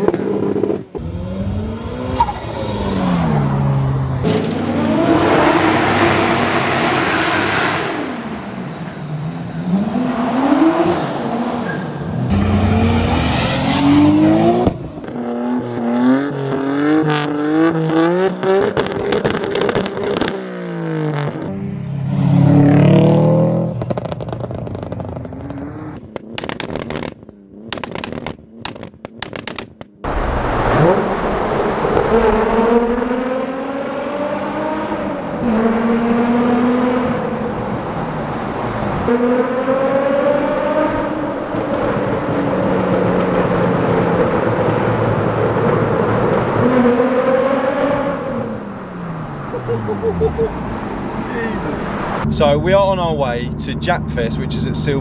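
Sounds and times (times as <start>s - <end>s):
car engines revving: 0.0s - 55.0s
sharp cracks: 24.2s - 30.2s.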